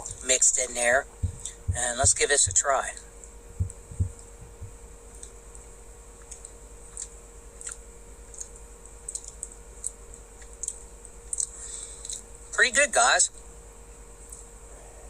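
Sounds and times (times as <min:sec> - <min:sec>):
steady hum: 0:00.0 - 0:15.0
soft low thumps: 0:01.1 - 0:05.0
faint clicks and mouth sounds: 0:01.2 - 0:12.3, 0:14.2 - 0:14.5
person eating ice cream: 0:06.2 - 0:12.3.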